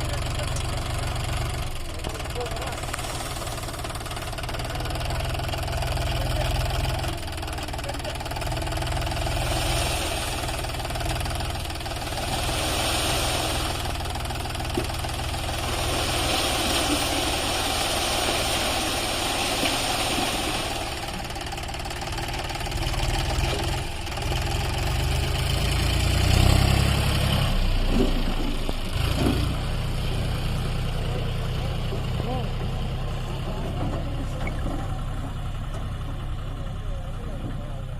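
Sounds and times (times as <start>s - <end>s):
tractor diesel engine running: 0.0s - 37.9s
higher rushing noise: 9.3s - 11.1s, 11.8s - 14.2s, 15.0s - 21.3s.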